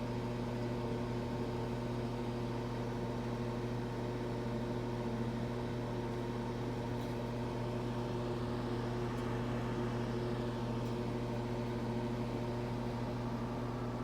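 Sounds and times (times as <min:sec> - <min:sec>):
microwave oven humming: 0:00.0 - 0:14.0.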